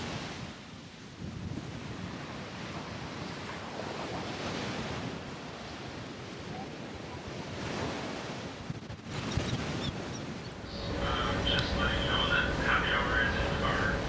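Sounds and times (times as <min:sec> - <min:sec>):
wind buffeting microphone: 0:00.2 - 0:14.0
surf rushing: 0:10.6 - 0:14.0.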